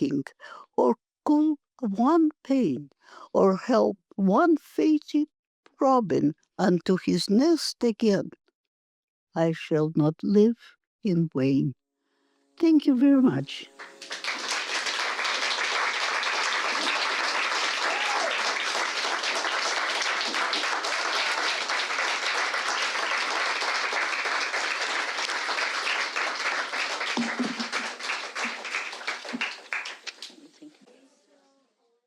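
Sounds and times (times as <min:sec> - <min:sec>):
audience applauding: 0:13.8 - 0:30.5.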